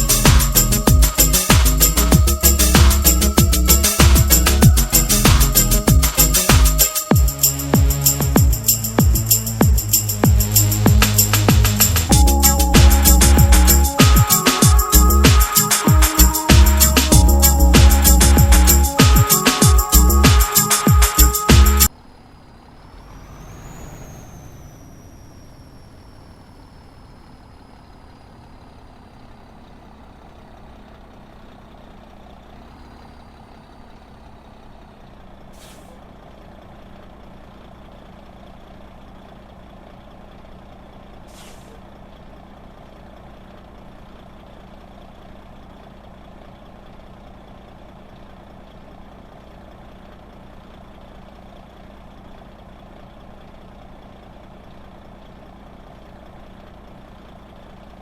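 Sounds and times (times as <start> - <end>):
high whine: 0.0 - 21.9, 22.9 - 27.5
heavy truck idling: 0.0 - 58.0
air hisses: 35.6 - 36.0, 41.3 - 41.8.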